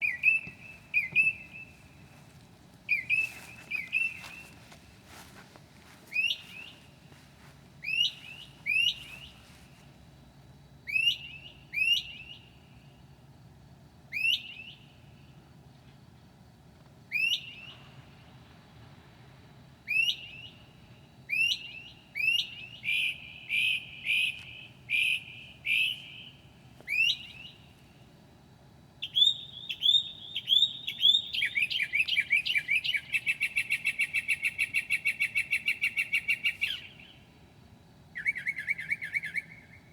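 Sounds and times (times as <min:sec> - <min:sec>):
mockingbird singing: 0:00.0 - 0:02.0, 0:02.9 - 0:05.4, 0:06.1 - 0:07.0, 0:07.8 - 0:09.5, 0:21.3 - 0:27.7, 0:29.0 - 0:37.2, 0:38.2 - 0:39.9.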